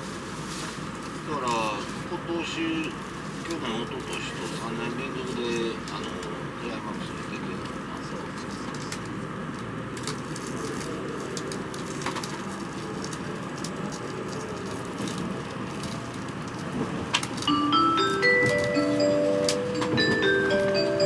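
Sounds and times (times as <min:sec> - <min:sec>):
train interior hum: 0:00.0 - 0:21.0
train chime melody: 0:17.4 - 0:21.0.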